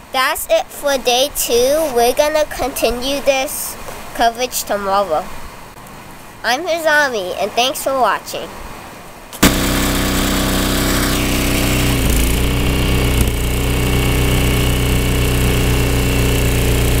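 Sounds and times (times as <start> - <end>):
snow blower engine running: 9.4 - 17.0.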